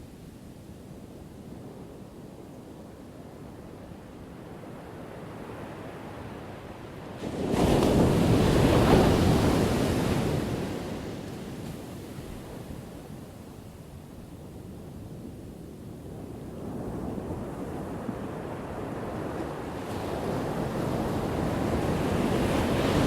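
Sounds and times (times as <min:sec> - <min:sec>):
ocean surf washing: 0:05.6 - 0:13.4, 0:16.8 - 0:23.0.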